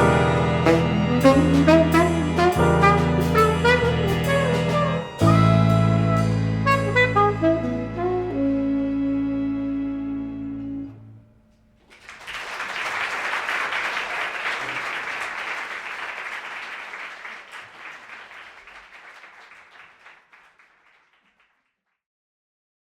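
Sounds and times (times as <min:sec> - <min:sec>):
tenor saxophone: 0:00.0 - 0:11.2
strings piano and bass chord: 0:00.0 - 0:11.3
audience applause: 0:11.8 - 0:21.5.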